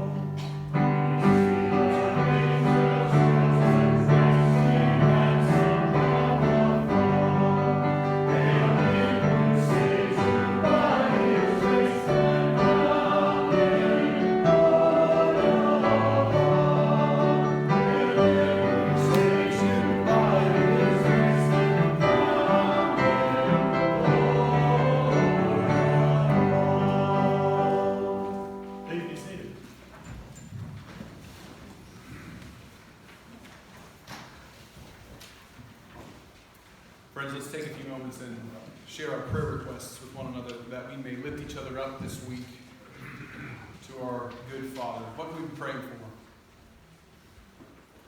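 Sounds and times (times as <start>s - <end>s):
congregation singing a hymn: 0.0s - 29.6s
instrumental accompaniment: 0.7s - 29.3s.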